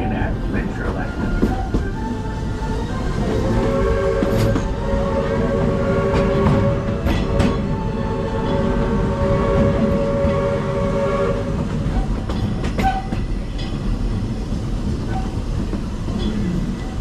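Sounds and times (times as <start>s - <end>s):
train rumbling along track: 0.0s - 17.0s
steam train whistle: 1.2s - 12.2s.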